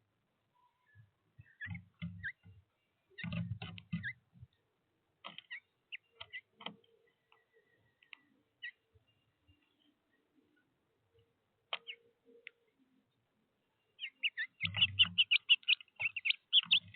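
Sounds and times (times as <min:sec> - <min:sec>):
small birds chirping: 0:00.5 - 0:16.9
close knocking and scratching: 0:01.4 - 0:02.6, 0:03.2 - 0:04.5, 0:14.6 - 0:16.9.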